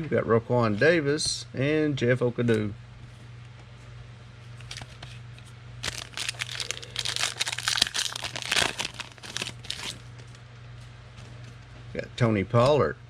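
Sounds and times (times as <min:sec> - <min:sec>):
wrapper tearing and crinkling: 0:05.8 - 0:10.2.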